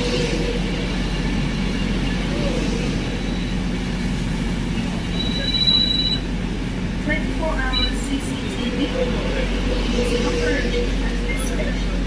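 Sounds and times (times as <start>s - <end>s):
train wheels rushing on rail: 0.0s - 12.0s.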